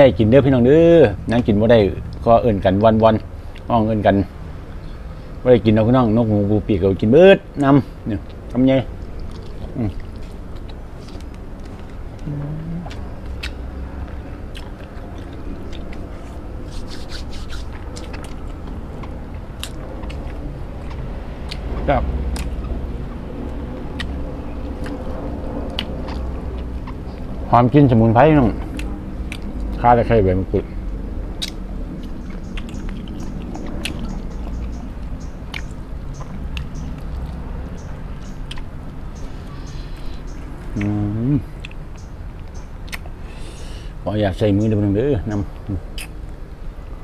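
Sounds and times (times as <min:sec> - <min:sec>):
low steady hum: 0:00.0 - 0:47.0
steady low rumble: 0:00.0 - 0:47.0
person chewing food: 0:08.2 - 0:27.5, 0:28.5 - 0:29.8, 0:31.3 - 0:41.0, 0:41.6 - 0:43.7
wet mouth clicks: 0:09.0 - 0:21.7, 0:22.3 - 0:22.8, 0:23.9 - 0:27.3, 0:28.6 - 0:29.8, 0:31.4 - 0:34.8, 0:35.5 - 0:38.7, 0:40.7 - 0:41.0, 0:42.5 - 0:43.2, 0:45.9 - 0:46.3.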